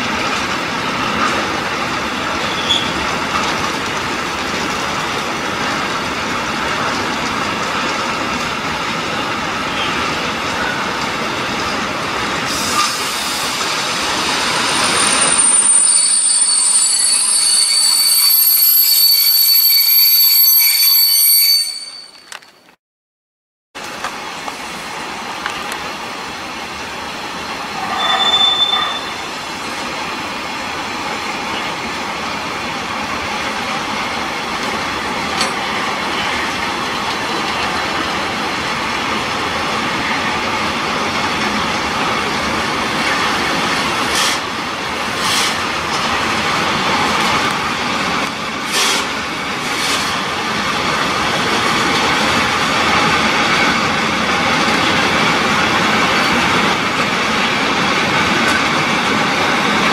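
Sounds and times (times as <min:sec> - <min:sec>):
freight wagons rolling on rails: 0:00.0 - 0:12.3
wheel squeal: 0:02.4 - 0:03.0, 0:14.1 - 0:22.6, 0:27.8 - 0:29.3.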